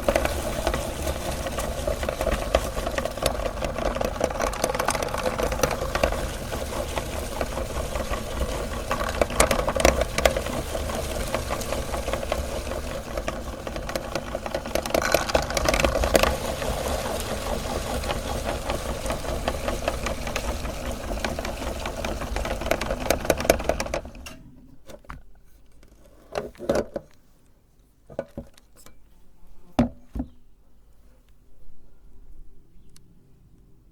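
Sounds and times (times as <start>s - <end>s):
candy crunching in grinder: 0.0s - 24.2s
meat grinder motor running: 0.0s - 24.2s.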